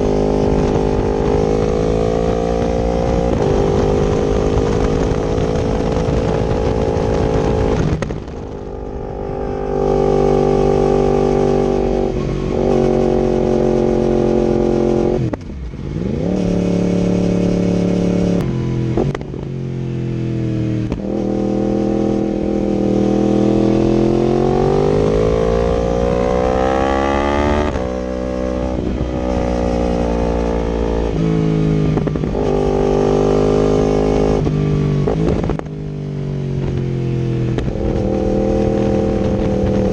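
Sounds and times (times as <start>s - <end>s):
motorcycle engine accelerating and shifting: 0.0s - 39.9s.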